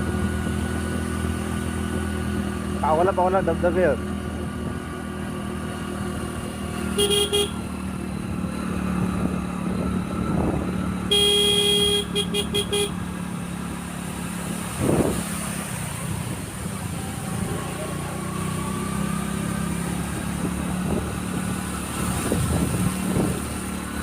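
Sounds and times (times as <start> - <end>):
motorcycle engine running: 0.0 - 24.0
horn honking: 6.9 - 7.8, 11.0 - 13.0.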